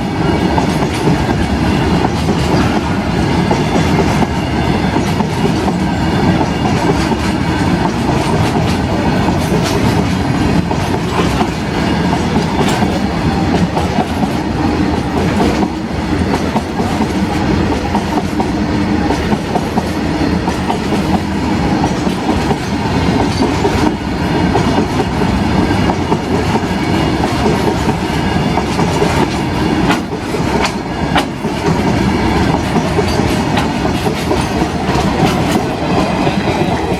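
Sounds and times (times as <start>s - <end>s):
freight train rumbling past: 0.0s - 36.9s
wheels clattering over rail joints: 6.4s - 24.0s.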